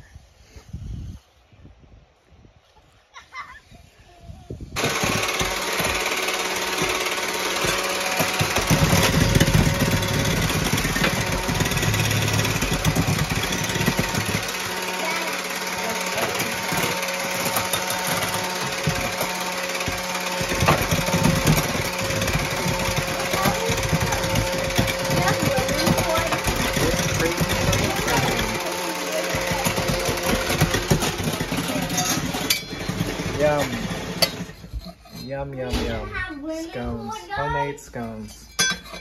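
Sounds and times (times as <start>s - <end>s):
engine running: 4.8s - 34.6s.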